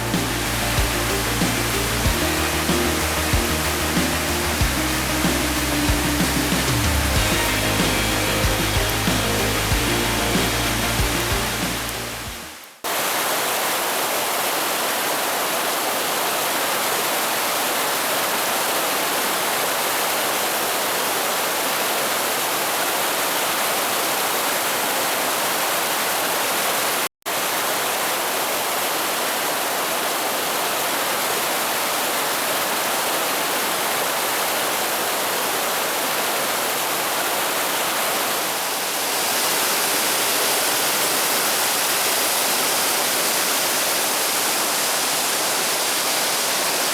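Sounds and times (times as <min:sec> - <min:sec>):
stream water rushing: 0:00.0 - 0:46.9.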